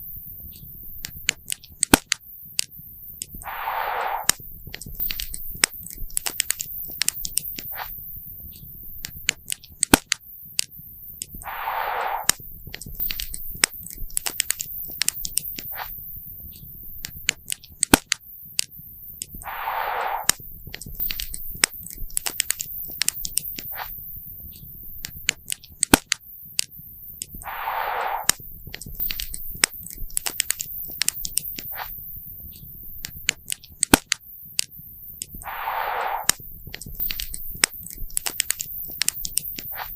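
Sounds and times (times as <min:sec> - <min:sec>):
short hiss: 0:03.4 - 0:04.4, 0:11.4 - 0:12.4, 0:19.4 - 0:20.4, 0:27.4 - 0:28.5, 0:35.4 - 0:38.0.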